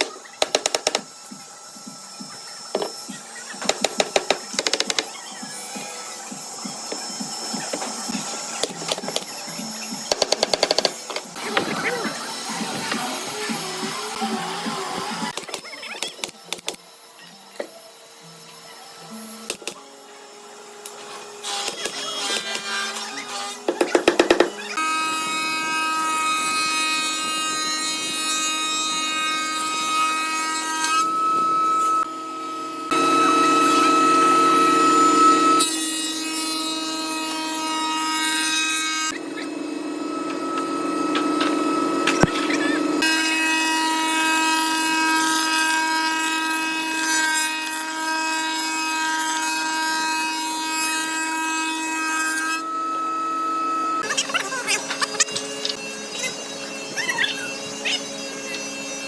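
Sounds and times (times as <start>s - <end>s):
power tool motor whine: 0.0s - 37.4s, 39.0s - 47.3s, 52.6s - 59.0s
wood cutting rasp: 21.4s - 32.1s, 32.9s - 52.6s, 54.0s - 59.0s.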